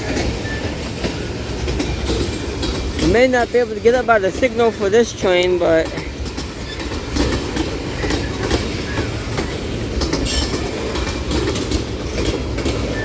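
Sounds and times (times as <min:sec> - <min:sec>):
train wheels rumbling on rail: 0:00.0 - 0:13.0
wheels clicking over rail joints: 0:00.0 - 0:13.0
wheel squeal: 0:12.8 - 0:13.0.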